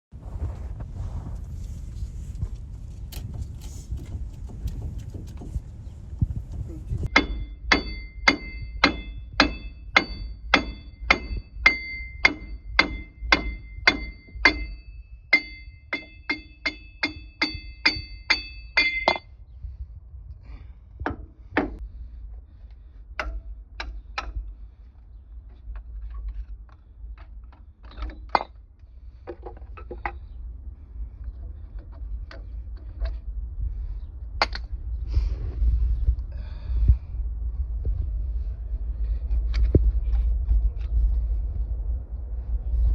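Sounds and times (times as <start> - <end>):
hammer blows on metal: 6.2 - 19.3.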